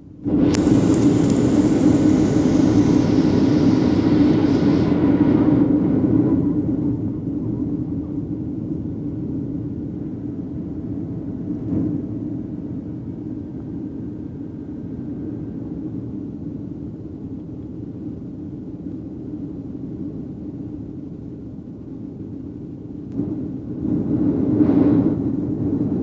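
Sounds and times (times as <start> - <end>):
airliner cabin engine rumble: 0.0 - 26.0.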